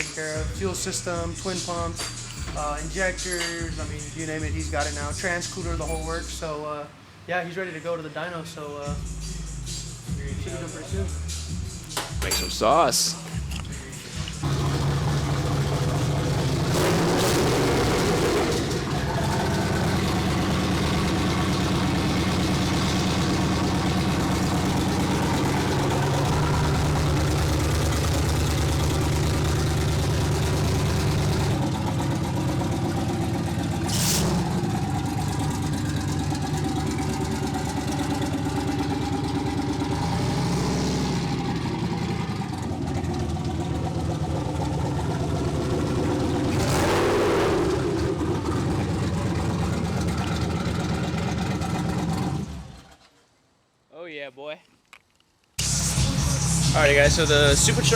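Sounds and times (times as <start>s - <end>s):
vehicle engine running: 0.0s - 7.2s, 8.9s - 53.0s, 55.6s - 57.9s
sharp short sound: 33.9s - 34.7s.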